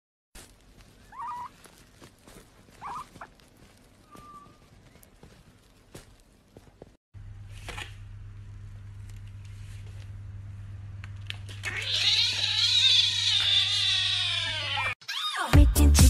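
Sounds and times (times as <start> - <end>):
low steady hum: 0.4 - 11.7
kitten meowing: 11.6 - 15.4.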